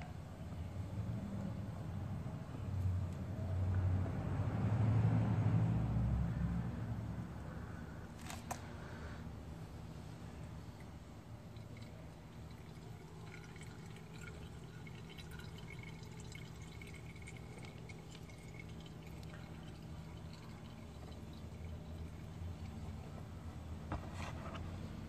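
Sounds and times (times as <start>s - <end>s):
oil pouring into container: 10.6s - 23.3s.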